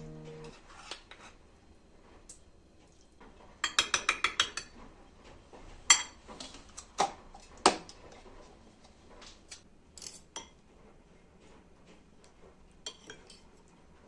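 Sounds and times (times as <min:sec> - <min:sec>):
utensils clinking against dishes: 0:09.9 - 0:10.6, 0:12.8 - 0:13.5.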